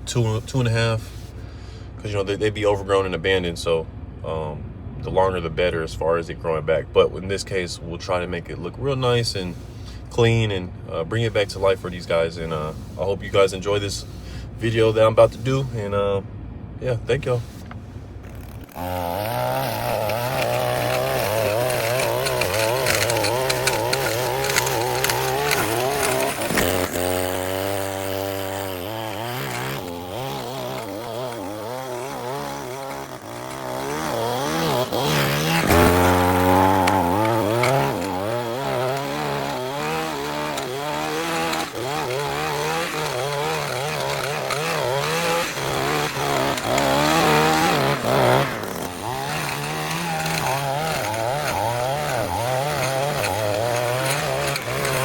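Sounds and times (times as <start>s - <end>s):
small gasoline engine running: 18.2s - 55.0s.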